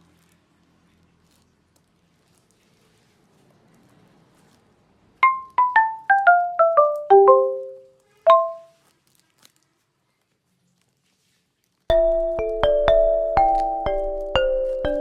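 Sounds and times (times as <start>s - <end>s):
marimba-like mallet notes: 5.2s - 8.7s, 11.9s - 15.0s.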